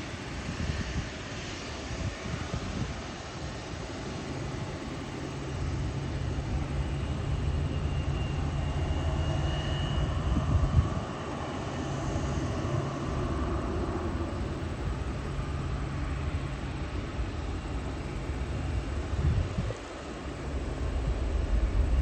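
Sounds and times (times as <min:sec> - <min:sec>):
high jet engine whine: 0:00.0 - 0:22.0
jet airliner passing overhead: 0:00.0 - 0:22.0.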